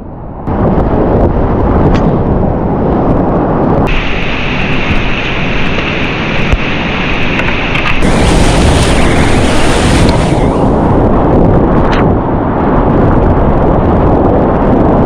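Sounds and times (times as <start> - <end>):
whitewater rapids roaring: 3.9 - 11.0.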